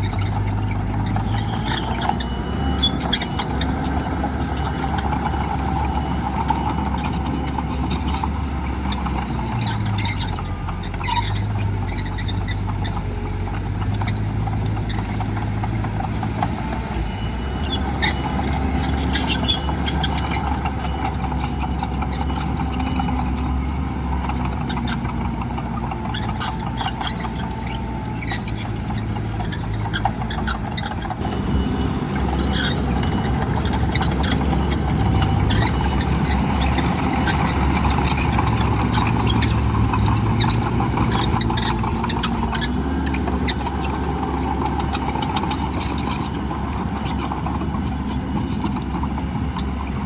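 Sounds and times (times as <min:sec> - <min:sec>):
heavy diesel machinery engine drone: 0:00.0 - 0:50.0
metallic clanks and squeaks: 0:00.0 - 0:50.0.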